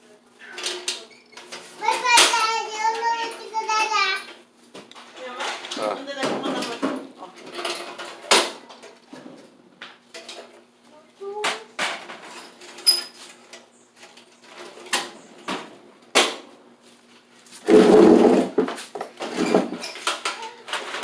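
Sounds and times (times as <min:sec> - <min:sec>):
metal parts and tools clinking: 0:12.4 - 0:13.2.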